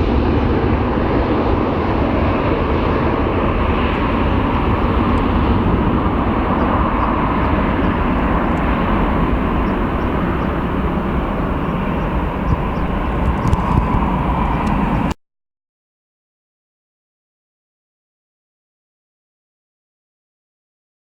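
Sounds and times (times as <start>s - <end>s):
jet engines roaring: 0.0s - 15.2s.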